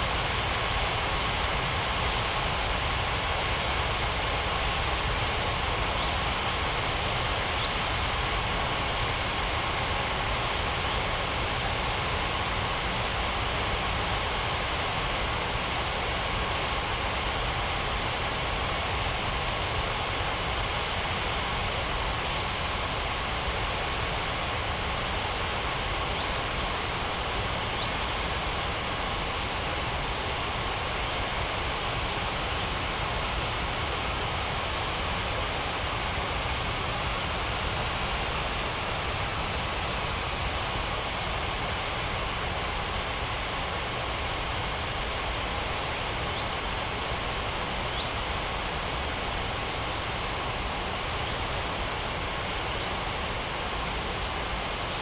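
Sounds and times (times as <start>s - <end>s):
jet engines roaring: 31.8s - 42.7s.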